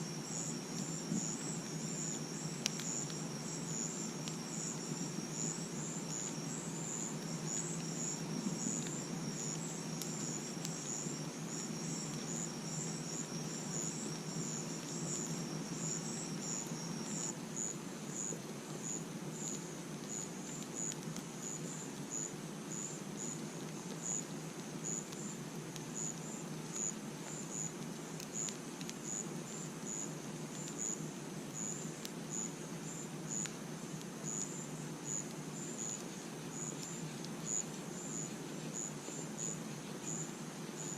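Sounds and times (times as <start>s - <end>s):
insect high trill: 0.0s - 17.4s
crickets chirping: 0.0s - 40.9s
campfire crackling: 0.1s - 40.9s.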